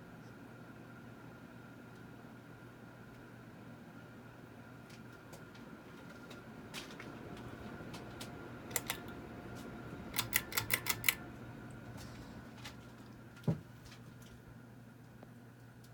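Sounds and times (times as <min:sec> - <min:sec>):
ceiling fan motor humming: 0:00.0 - 0:15.9
sharp clicks: 0:08.7 - 0:09.2, 0:10.2 - 0:11.2.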